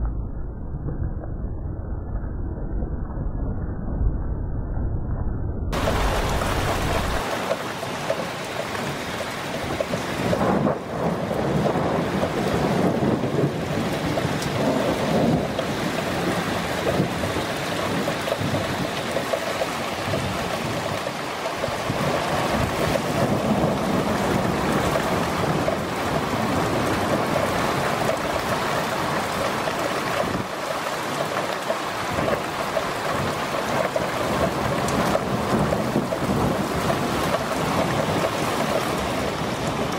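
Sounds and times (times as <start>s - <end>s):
heavy rain pouring: 5.8s - 39.9s.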